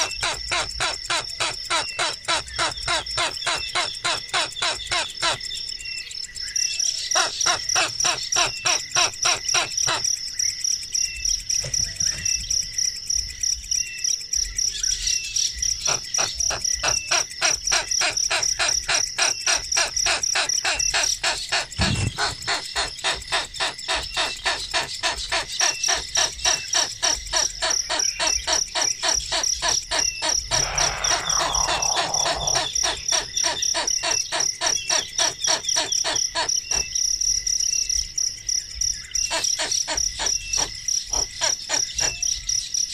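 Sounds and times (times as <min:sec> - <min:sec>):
insects buzzing: 0:00.0 - 0:42.9
birds chirping: 0:14.8 - 0:37.0
low thump: 0:21.8 - 0:22.2.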